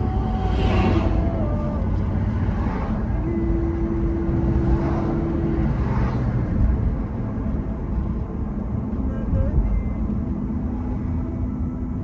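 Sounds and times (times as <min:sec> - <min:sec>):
cars swishing past: 0:00.0 - 0:03.2, 0:03.8 - 0:07.0
low rumble of traffic: 0:00.0 - 0:12.0.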